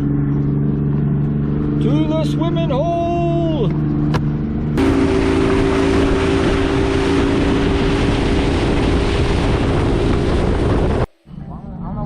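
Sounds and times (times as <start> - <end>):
motorboat engine running: 0.0 - 12.0
wind on microphone: 4.1 - 11.4.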